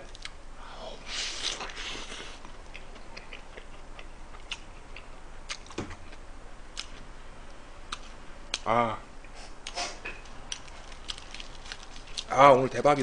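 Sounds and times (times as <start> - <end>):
chewing with wet mouth clicks: 0.1 - 0.4, 2.4 - 5.8, 10.5 - 12.3
biting into a wrapped burger: 10.5 - 12.3.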